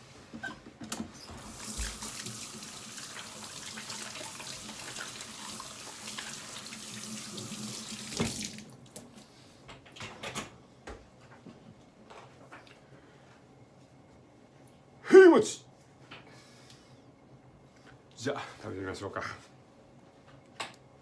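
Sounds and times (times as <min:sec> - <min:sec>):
water running from a tap: 0:01.3 - 0:09.1.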